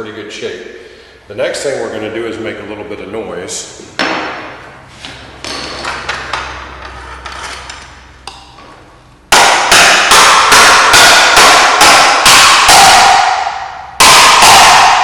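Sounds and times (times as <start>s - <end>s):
hammer striking metal: 9.3s - 15.0s.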